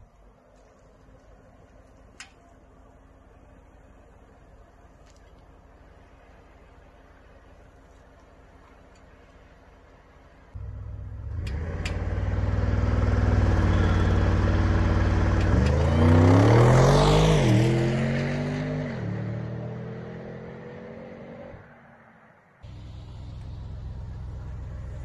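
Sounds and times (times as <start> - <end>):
car engine revving and launching: 10.6 - 22.0.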